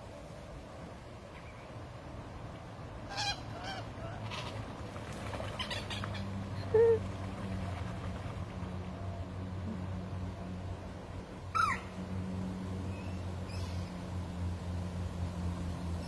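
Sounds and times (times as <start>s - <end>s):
steady low hum: 0.0s - 16.0s
waterfowl calling: 3.1s - 4.6s, 11.5s - 12.0s.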